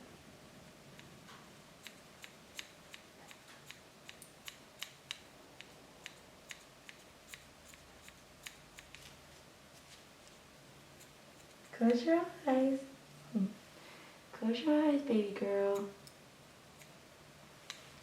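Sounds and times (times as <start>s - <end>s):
grooming shears snipping hair: 1.8s - 9.2s.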